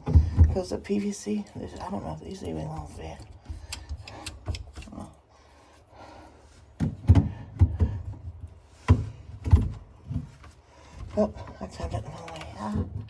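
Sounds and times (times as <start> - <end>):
plastic drain fittings knocking: 0.0 - 0.6, 6.8 - 10.4.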